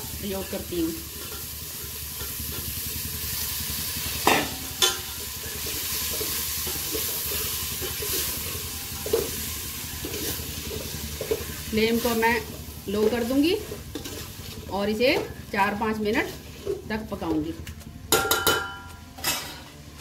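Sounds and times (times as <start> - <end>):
chickpeas sizzling in hot ghee: 0.0 - 19.0
spoon knocking against pot: 18.1 - 19.4.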